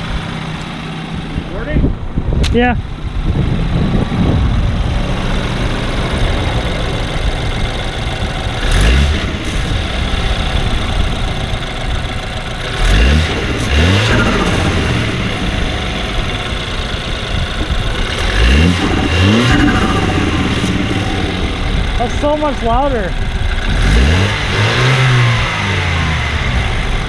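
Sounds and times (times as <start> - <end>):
car engine revving: 0.0 - 27.0
turbo intake noise: 0.0 - 27.0.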